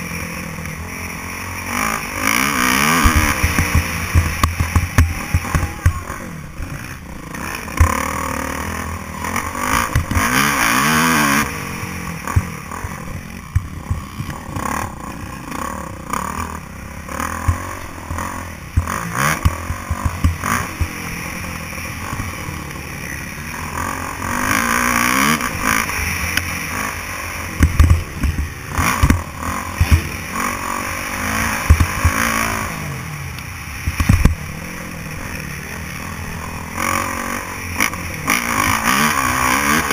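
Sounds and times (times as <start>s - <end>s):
dirt bike engine revving: 0.0s - 39.9s
sharp knocks and clatter: 2.9s - 5.7s, 27.6s - 30.1s.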